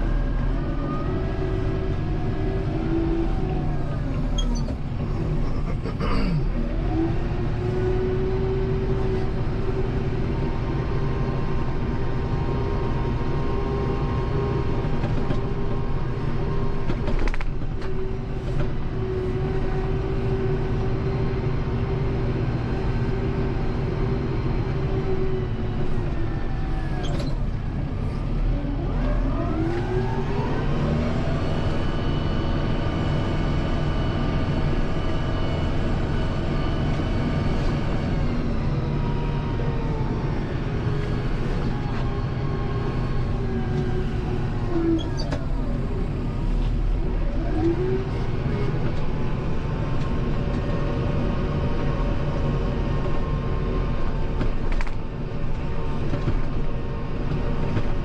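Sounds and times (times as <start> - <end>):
tractor diesel engine under load: 0.0 - 58.0
brief squeaks: 4.2 - 4.8, 26.8 - 27.4, 44.9 - 45.5.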